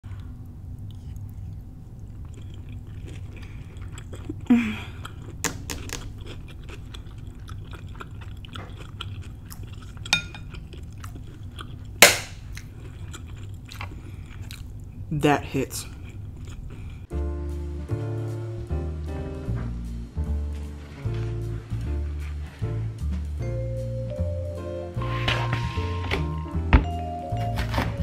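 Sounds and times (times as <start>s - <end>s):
steady low hum: 0.0s - 25.3s
wet chewing and mouth smacks: 0.2s - 15.0s, 15.9s - 17.1s.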